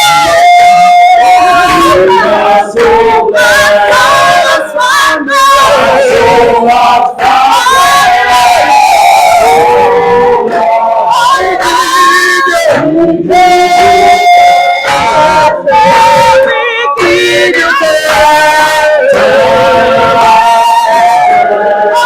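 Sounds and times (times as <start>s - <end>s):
man singing worship song: 0.0s - 22.0s.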